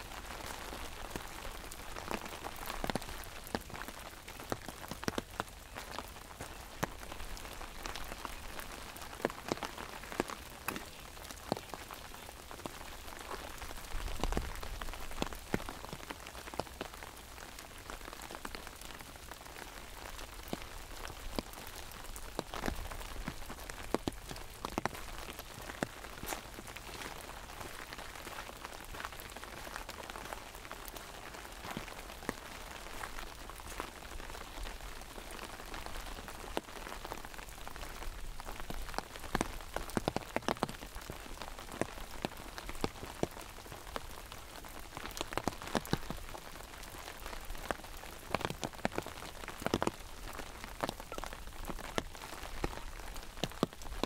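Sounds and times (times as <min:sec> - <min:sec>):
raindrops pattering on umbrella: 0:00.0 - 0:54.0
steady rain falling: 0:00.0 - 0:54.0.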